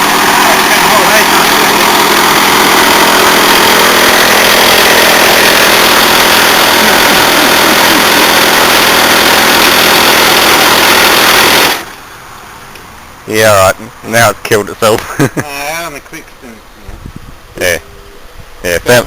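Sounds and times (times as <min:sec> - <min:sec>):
window air conditioner running: 0:00.0 - 0:19.0.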